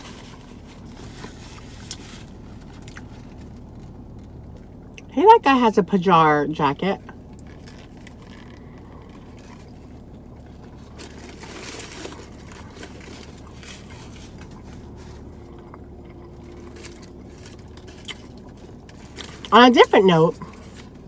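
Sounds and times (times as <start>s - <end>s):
faint chewing: 0.0s - 5.1s, 7.1s - 19.5s
low hum in car cabin: 0.0s - 21.0s
paper wrapper rustling: 10.5s - 15.4s.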